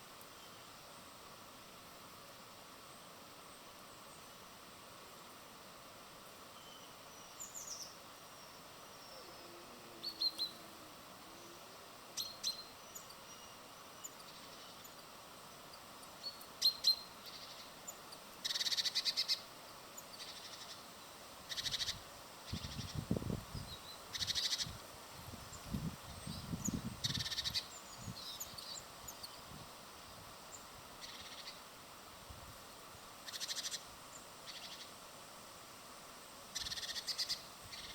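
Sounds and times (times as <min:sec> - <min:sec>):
small birds chirping: 0:06.6 - 0:10.7, 0:11.4 - 0:24.8, 0:25.4 - 0:31.7, 0:33.2 - 0:35.0, 0:36.5 - 0:37.9.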